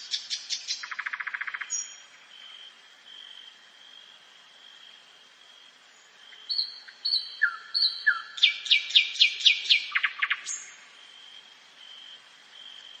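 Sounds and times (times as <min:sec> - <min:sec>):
nightingale singing: 0:00.0 - 0:02.2, 0:05.9 - 0:10.8.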